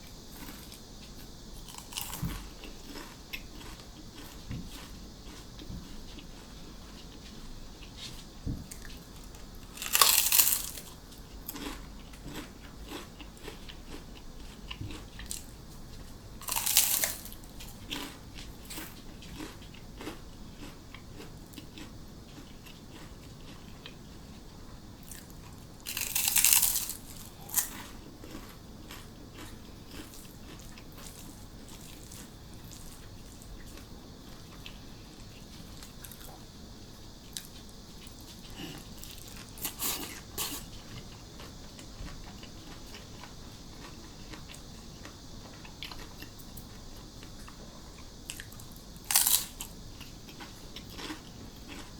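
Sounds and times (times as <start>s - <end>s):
quiet chewing: 0.3s - 24.4s, 25.0s - 36.5s, 37.1s - 51.9s
crisp food crunching: 1.6s - 5.4s, 9.6s - 15.5s, 16.4s - 23.6s, 25.0s - 33.9s, 35.6s - 36.3s, 48.3s - 51.9s.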